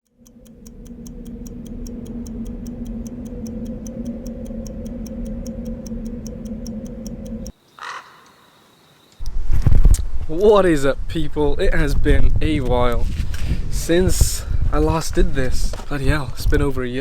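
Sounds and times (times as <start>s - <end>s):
low hum: 0.0s - 7.6s
rapid even ticking: 0.0s - 7.6s.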